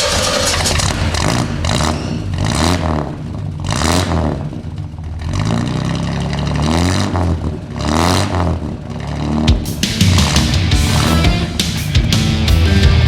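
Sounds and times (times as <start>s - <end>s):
sharp crackling bursts: 0.0s - 5.6s
car engine revving: 0.0s - 13.0s.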